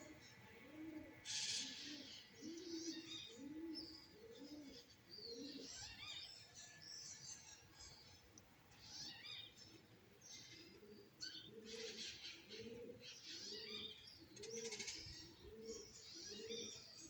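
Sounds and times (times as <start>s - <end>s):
pigeons cooing: 0.0s - 6.2s, 9.8s - 17.0s
small birds chirping and trilling: 0.0s - 17.0s.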